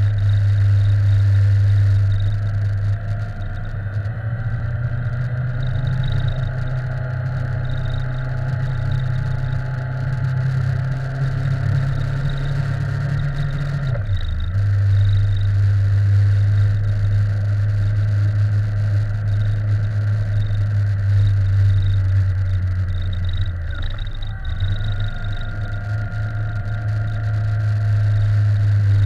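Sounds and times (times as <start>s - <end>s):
faint high whine: 0.0s - 29.0s
motorcycle engine cruising: 0.0s - 29.0s.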